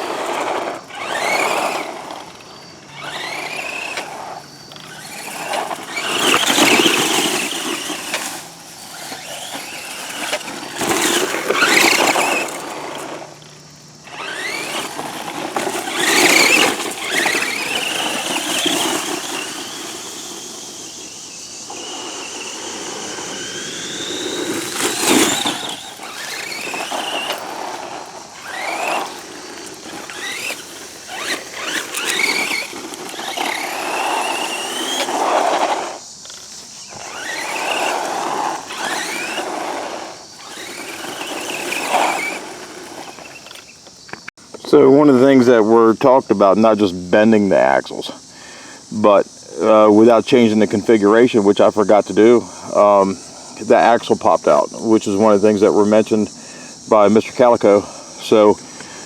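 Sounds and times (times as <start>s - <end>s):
rushes of motor noise: 0.0s - 44.3s
rc truck electric motor whining: 0.0s - 45.4s, 47.6s - 59.0s.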